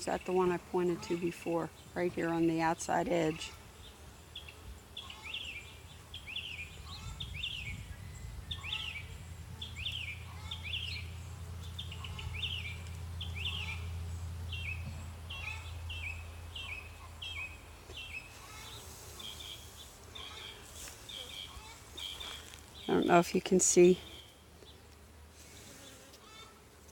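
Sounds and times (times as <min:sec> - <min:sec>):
songbird chirping: 0:00.0 - 0:25.0
honeybees humming: 0:00.0 - 0:26.9.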